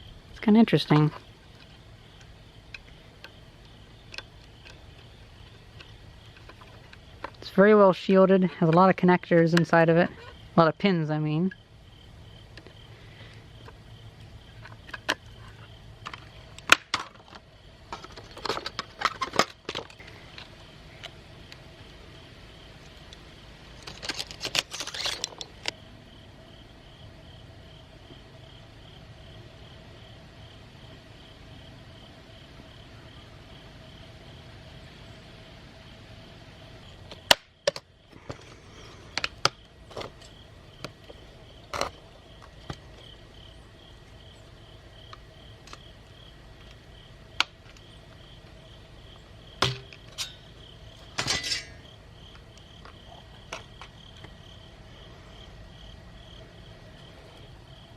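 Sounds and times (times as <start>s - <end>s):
crickets chirping: 0.0s - 57.9s
faint steady hum: 0.0s - 57.9s
metal and plastic parts clattering: 14.6s - 20.5s, 23.8s - 25.7s, 49.6s - 51.8s.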